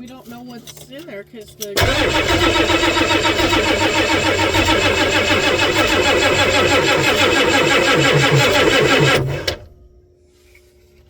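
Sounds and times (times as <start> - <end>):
starter cranking diesel engine: 1.8 - 9.8.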